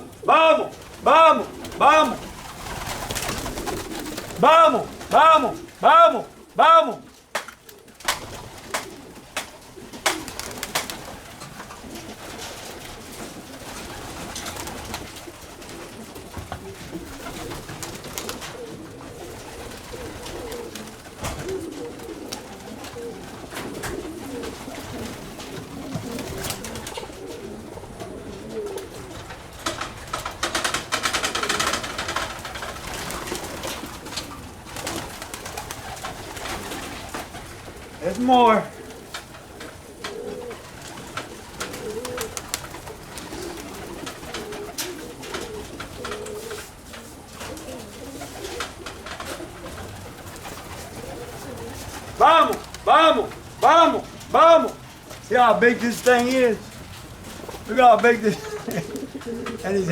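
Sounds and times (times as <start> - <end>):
pigeons cooing: 0.0 - 59.9
feathers rustling: 0.7 - 5.8, 31.6 - 59.9
clicks and scuffs of birds: 7.3 - 28.1, 38.9 - 53.5, 58.4 - 59.8.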